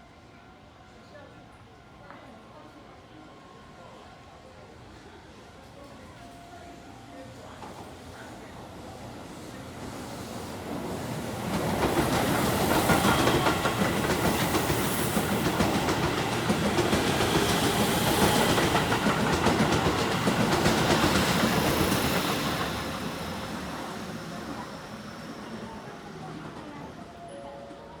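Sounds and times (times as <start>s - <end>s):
train wheels rushing on rail: 7.5s - 27.8s.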